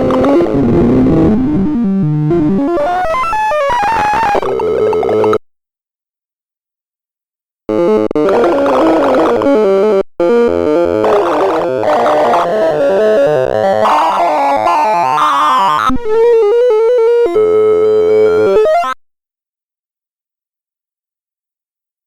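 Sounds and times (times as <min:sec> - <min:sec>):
rising synth sweep: 0:00.0 - 0:02.7
rapid synthesized electronic tones: 0:00.0 - 0:05.4, 0:07.8 - 0:17.0.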